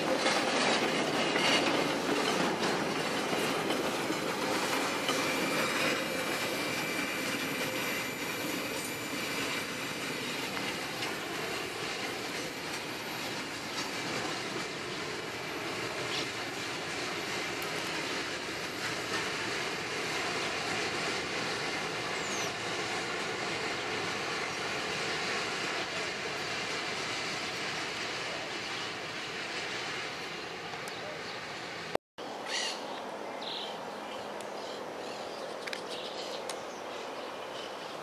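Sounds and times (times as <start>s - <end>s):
wheel squeal: 0.0s - 16.4s
train wheels rattling over rails: 0.0s - 32.0s.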